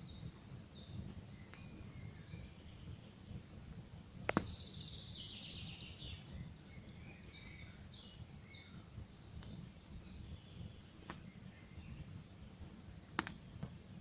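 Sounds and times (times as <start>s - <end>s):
songbirds chirping: 0.0s - 14.0s
campfire wood popping: 4.2s - 4.6s, 9.4s - 9.7s, 13.1s - 13.8s
fire crackling: 8.9s - 14.0s.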